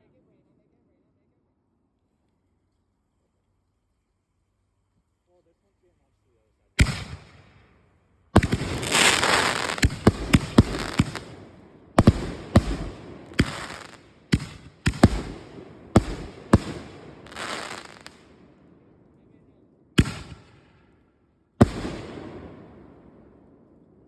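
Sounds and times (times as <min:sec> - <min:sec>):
fireworks crackling hiss: 0:08.4 - 0:11.4, 0:12.0 - 0:18.3
fireworks bangs: 0:08.4 - 0:18.3, 0:20.0 - 0:20.8, 0:21.6 - 0:23.1.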